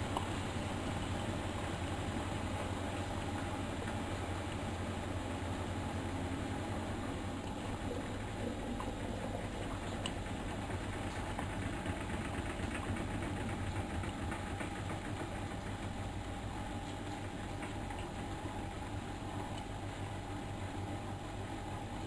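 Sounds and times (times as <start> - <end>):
washing machine running: 0.0 - 22.0.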